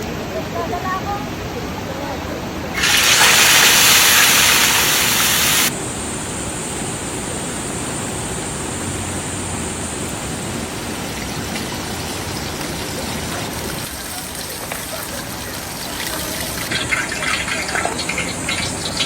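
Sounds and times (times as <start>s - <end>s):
rain hissing: 2.6s - 6.7s, 7.8s - 19.0s
loud even hiss: 2.7s - 10.0s.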